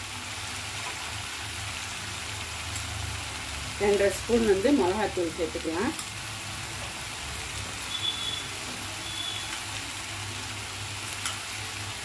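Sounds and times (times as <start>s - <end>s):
mushrooms sizzling in oil: 0.0s - 12.0s
faint high whistle-like tones: 7.9s - 9.6s.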